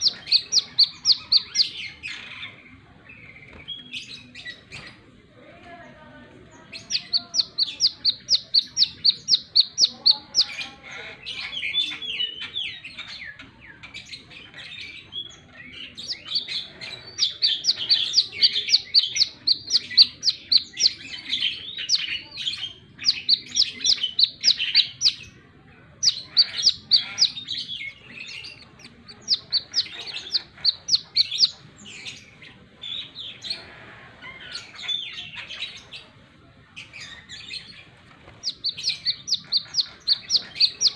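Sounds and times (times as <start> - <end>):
bird singing sharp high chirps: 0.0 - 2.2, 6.7 - 10.6, 14.8 - 25.4, 26.0 - 33.5, 38.4 - 40.9.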